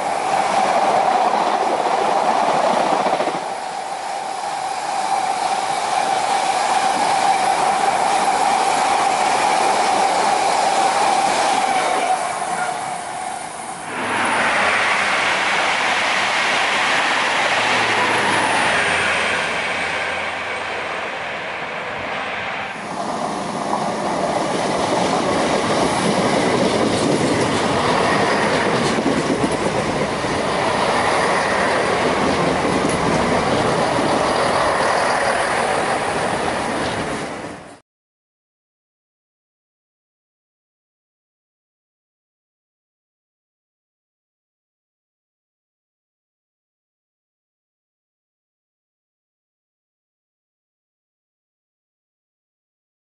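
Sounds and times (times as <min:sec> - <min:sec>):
diesel train moving: 0:00.0 - 0:37.8
freight train rumbling past: 0:00.0 - 0:37.8.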